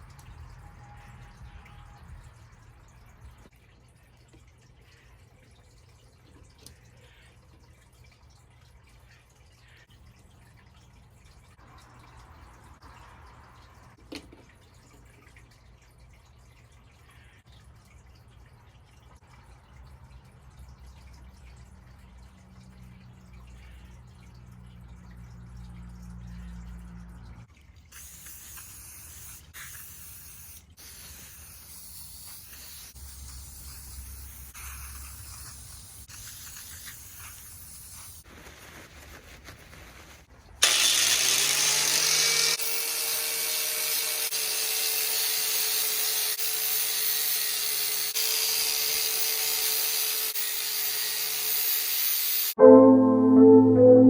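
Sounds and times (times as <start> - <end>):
power tool motor whining: 40.6 - 44.4.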